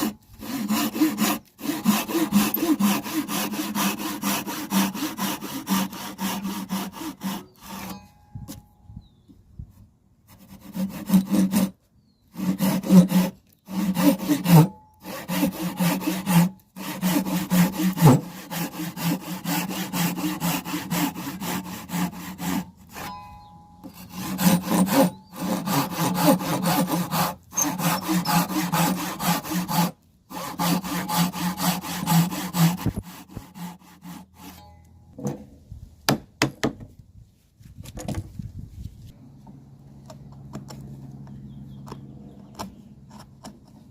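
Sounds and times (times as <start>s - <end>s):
hand saw cutting wood: 0.0s - 8.0s, 10.3s - 23.2s, 23.8s - 34.7s, 41.9s - 43.9s.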